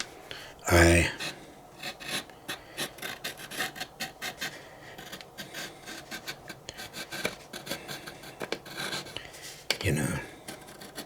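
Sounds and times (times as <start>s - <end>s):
tool rasping on gourd shell: 1.2s - 9.2s, 10.4s - 11.0s.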